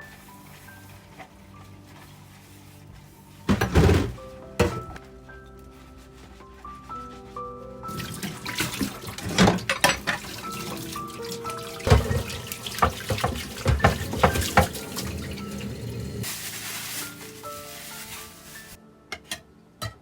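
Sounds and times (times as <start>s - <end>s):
soft background music: 0.0s - 20.0s
knocks and clatter of objects: 3.5s - 4.9s, 8.6s - 10.3s, 11.8s - 14.8s
tap water running into sink: 7.9s - 16.2s.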